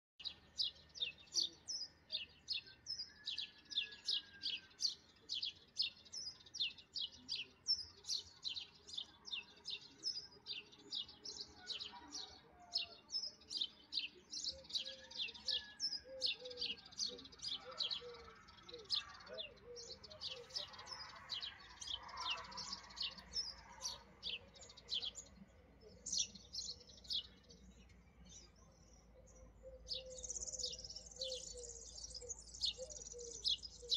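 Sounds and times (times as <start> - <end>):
small bird chirping: 12.9 - 33.9.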